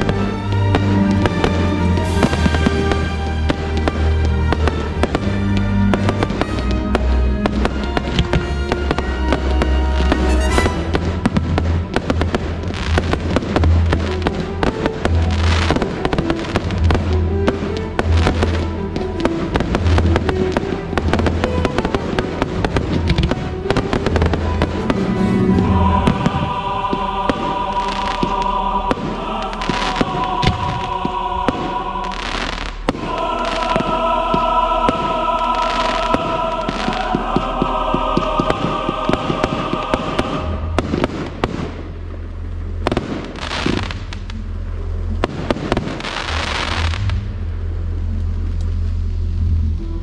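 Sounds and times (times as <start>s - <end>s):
fireworks exploding and crackling: 0.0s - 47.4s
music with held low bass: 33.1s - 50.0s.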